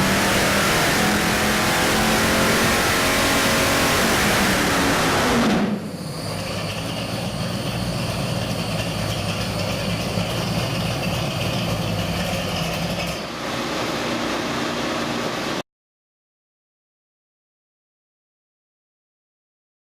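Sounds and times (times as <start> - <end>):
car engine idling: 4.5 - 15.5.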